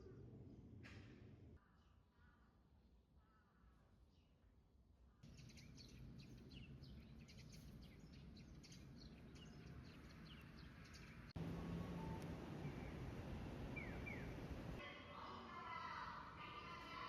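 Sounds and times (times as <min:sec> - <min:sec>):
small birds chirping: 0:05.2 - 0:14.8
low background noise: 0:05.3 - 0:17.0
steady hum: 0:11.4 - 0:14.8.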